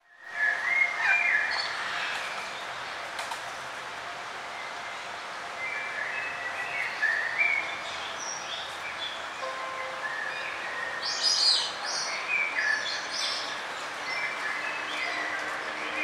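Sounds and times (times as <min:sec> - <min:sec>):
songbirds chirping: 0:03.7 - 0:16.0.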